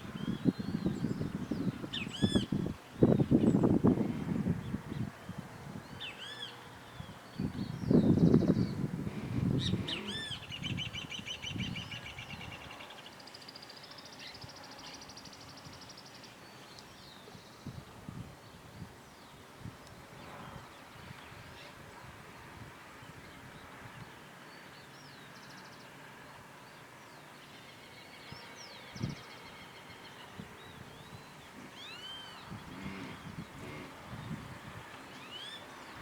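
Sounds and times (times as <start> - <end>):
outdoor background hiss: 0.0 - 36.0
birds chirping and trilling: 7.4 - 12.5, 29.9 - 34.4.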